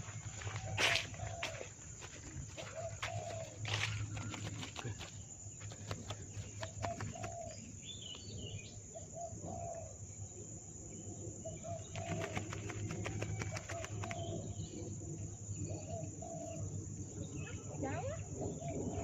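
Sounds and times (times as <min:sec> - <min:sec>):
dove cooing: 0:00.4 - 0:07.7, 0:08.9 - 0:10.0, 0:11.4 - 0:14.6, 0:15.7 - 0:16.7.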